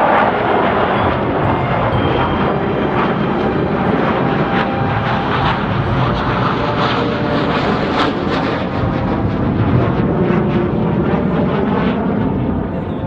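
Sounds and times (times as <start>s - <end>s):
fighter jet engine roar: 0.0s - 13.0s.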